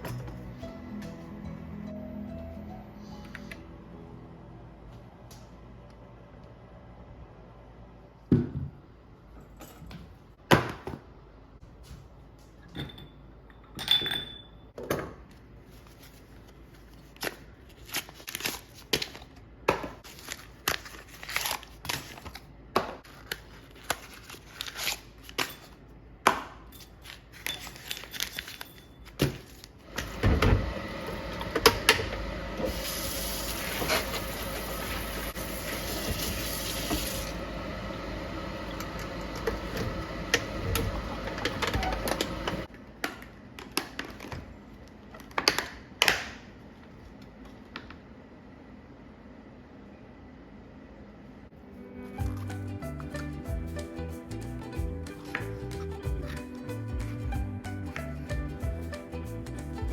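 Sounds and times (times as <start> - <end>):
water running into container: 32.6 - 37.4.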